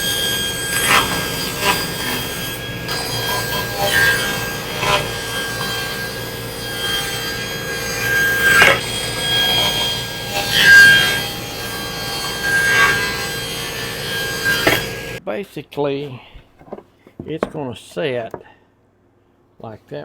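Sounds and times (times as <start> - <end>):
table saw cutting panels: 0.0 - 15.2.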